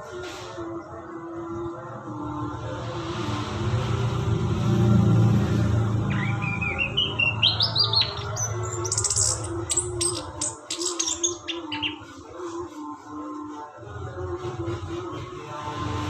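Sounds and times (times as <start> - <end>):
songbird singing: 6.0 - 12.2.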